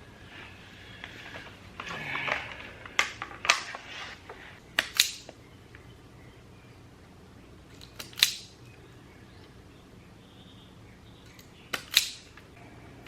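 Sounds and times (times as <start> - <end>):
hand tools snapping wire: 4.8 - 5.4, 7.7 - 8.6, 11.3 - 12.5.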